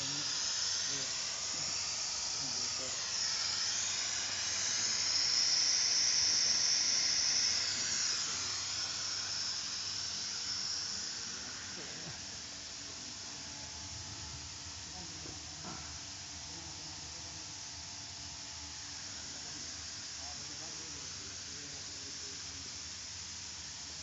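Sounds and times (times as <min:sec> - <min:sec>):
packing machine high-pitched hiss: 0:00.0 - 0:17.5.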